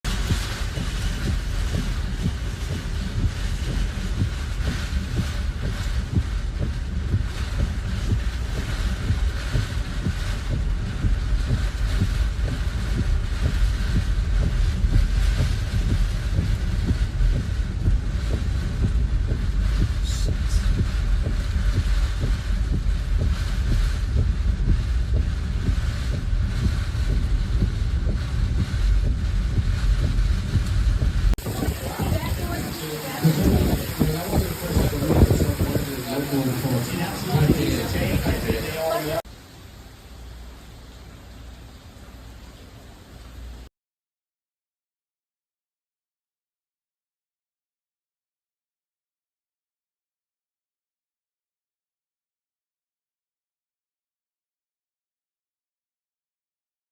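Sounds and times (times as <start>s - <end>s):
hiss of wind: 0.0s - 43.7s
wind buffeting microphone: 0.1s - 39.2s.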